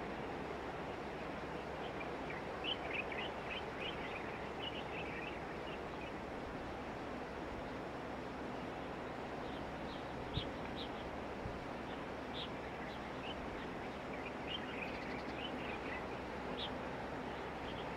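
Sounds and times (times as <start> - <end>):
outdoor background rumble: 0.0 - 17.9
small birds chirping: 9.4 - 11.2, 11.8 - 17.9.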